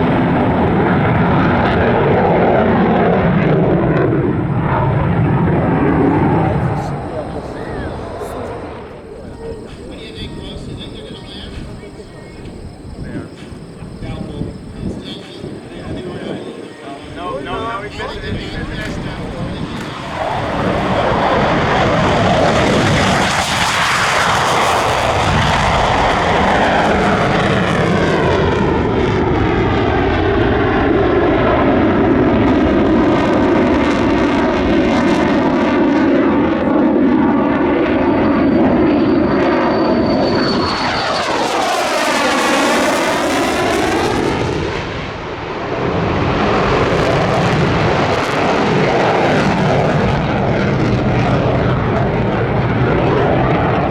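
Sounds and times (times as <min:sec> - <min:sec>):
jet aircraft flying past: 0:00.0 - 0:53.9
thin high whine: 0:37.8 - 0:43.4.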